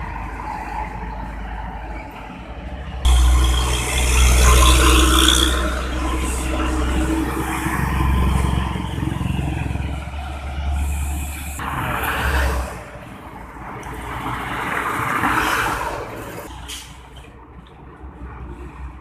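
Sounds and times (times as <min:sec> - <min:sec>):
trucks and vehicles passing: 0:00.0 - 0:19.0
tyre and road noise: 0:00.0 - 0:19.0
deep engine rumble: 0:02.9 - 0:11.6.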